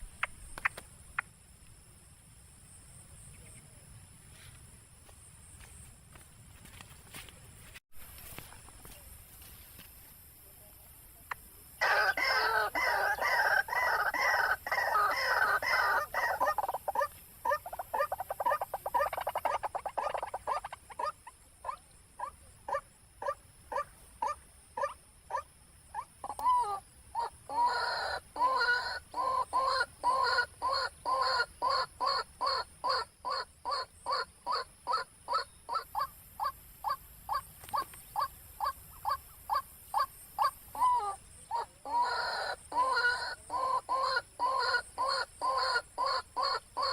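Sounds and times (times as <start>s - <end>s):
waterhen calling: 11.8s - 21.8s, 26.2s - 46.9s.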